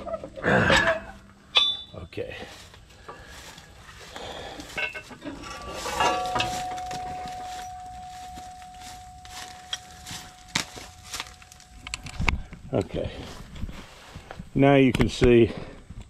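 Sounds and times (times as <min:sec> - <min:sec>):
metal clinks and clanks: 0:00.0 - 0:02.2, 0:04.4 - 0:12.3
steel strike ringing: 0:00.8 - 0:02.1, 0:04.8 - 0:11.9.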